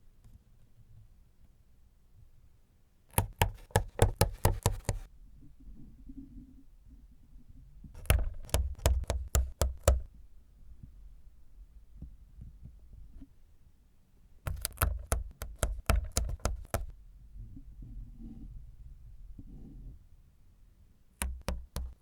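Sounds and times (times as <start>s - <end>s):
quick sharp hard taps: 3.1s - 5.1s, 8.0s - 10.1s, 14.5s - 16.9s, 21.2s - 22.0s.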